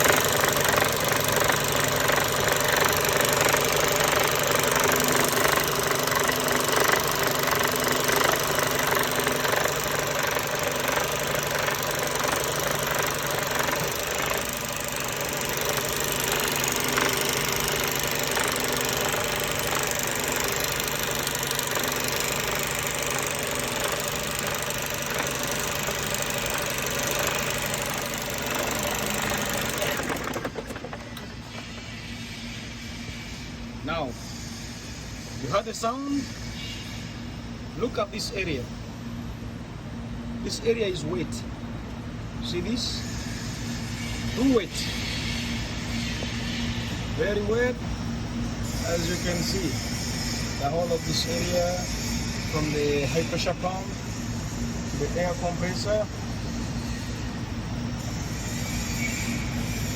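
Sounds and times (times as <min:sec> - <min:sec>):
diesel engine knocking: 0:00.0 - 0:31.2.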